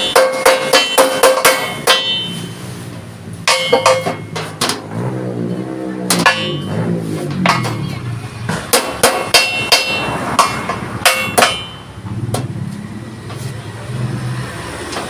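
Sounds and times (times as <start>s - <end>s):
hammer striking steel plate: 0.0s - 4.9s, 6.1s - 12.0s.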